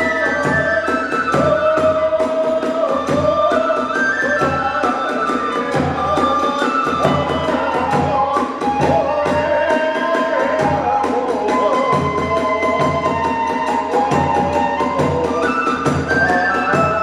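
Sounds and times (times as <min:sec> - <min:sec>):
bamboo flute melody: 0:00.0 - 0:17.0
drum beats: 0:00.0 - 0:17.0.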